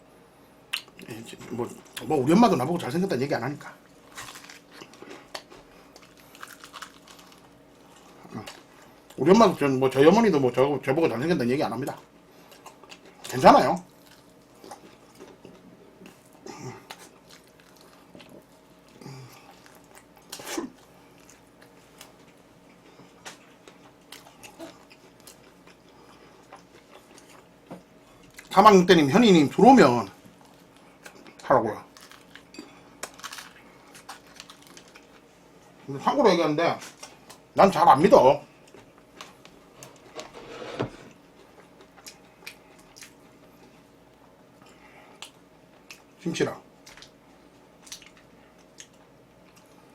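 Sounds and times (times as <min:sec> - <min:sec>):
chewing food: 0:03.8 - 0:09.2, 0:12.4 - 0:28.6, 0:30.2 - 0:35.3, 0:47.8 - 0:49.9.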